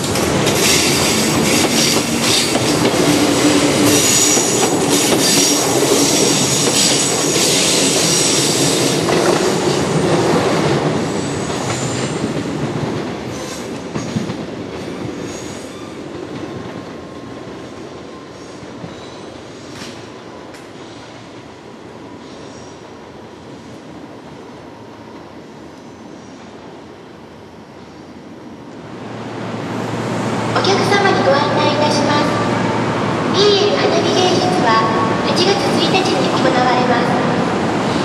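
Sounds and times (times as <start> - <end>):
electric train wheels clacking: 0.0 - 17.0.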